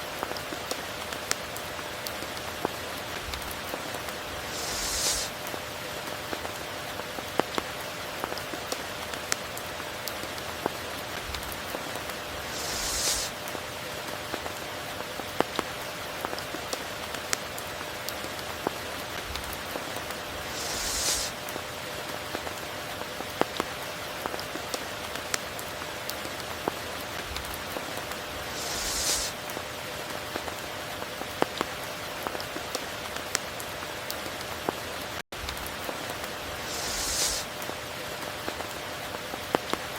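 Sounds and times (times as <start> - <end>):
close rain drop ticks: 0.0 - 39.9
steady rain: 0.0 - 39.9
brief hissing swell: 4.4 - 5.3, 12.4 - 13.4, 20.4 - 21.4, 28.4 - 29.4, 36.6 - 37.5.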